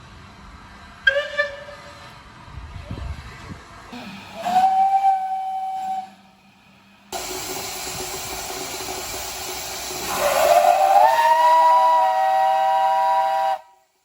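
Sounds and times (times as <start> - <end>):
hiss of escaping steam: 3.9 - 13.8
steam locomotive whistle: 4.3 - 6.4, 9.4 - 13.9.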